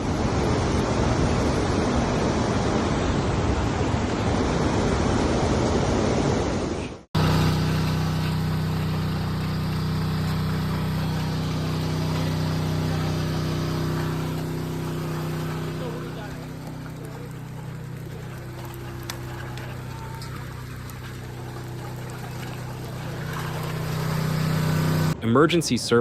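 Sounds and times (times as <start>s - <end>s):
floodwater rushing: 7.2s - 25.2s
motor hum: 7.2s - 25.2s
water noise: 7.2s - 25.2s.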